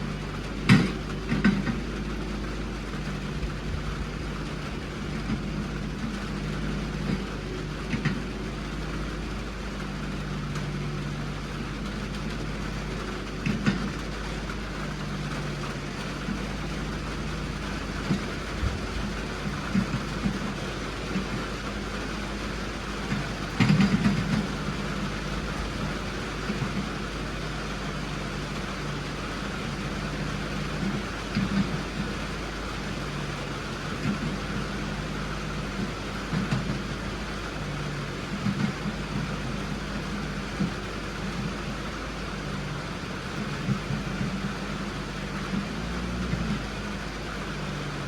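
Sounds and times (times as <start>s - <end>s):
clunks and rattles: 0.0s - 48.0s
vehicle engine running: 0.0s - 48.0s.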